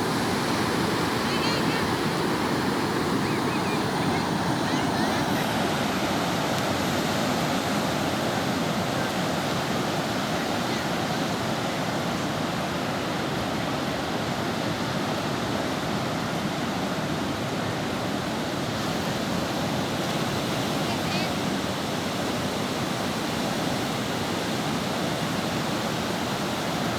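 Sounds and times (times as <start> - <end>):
surf breaking on beach: 0.0 - 17.1.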